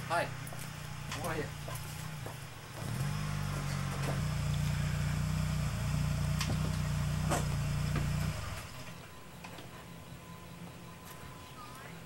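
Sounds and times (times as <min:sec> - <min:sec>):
car engine idling: 0:00.0 - 0:09.0.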